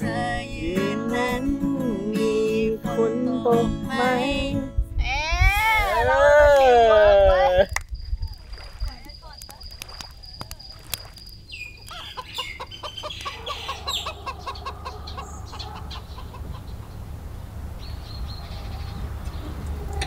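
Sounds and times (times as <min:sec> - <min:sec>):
bird clucking notes: 0:11.6 - 0:17.1
low steady rumble: 0:14.1 - 0:20.0.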